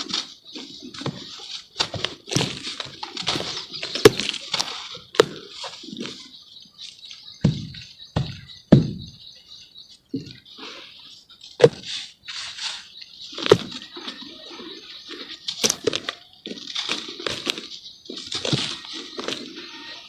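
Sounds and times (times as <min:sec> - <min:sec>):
dull low thuds: 0:07.4 - 0:09.4.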